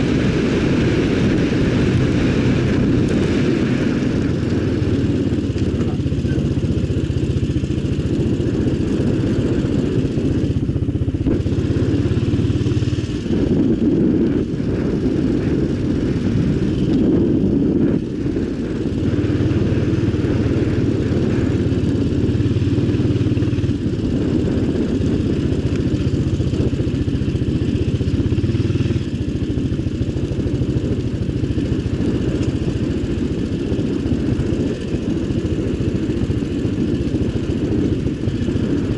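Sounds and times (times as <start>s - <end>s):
quad engine revving: 0.0s - 31.0s.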